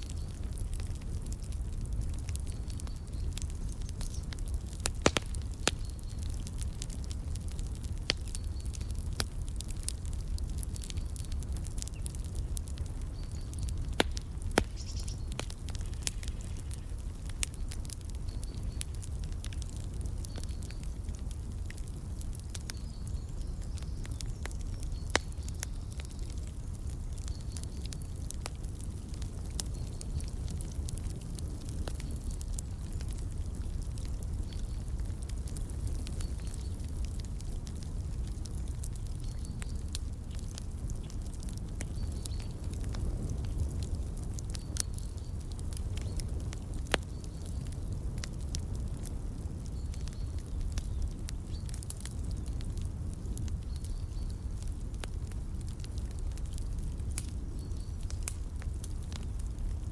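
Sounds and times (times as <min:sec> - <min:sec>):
wood fire crackling: 0:00.0 - 0:59.9
faint bird chirps: 0:14.6 - 0:19.0.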